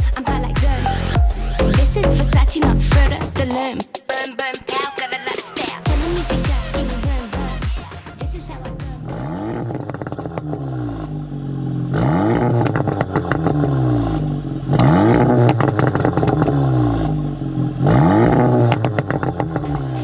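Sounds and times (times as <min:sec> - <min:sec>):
car engine revving: 0:05.9 - 0:20.0.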